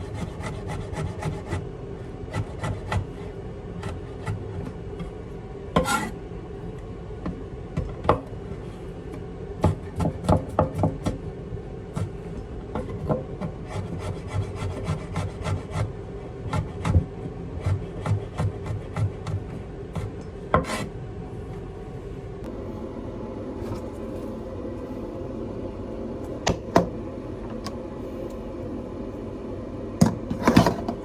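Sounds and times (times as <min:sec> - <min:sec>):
steady low hum: 0:11.3 - 0:31.0.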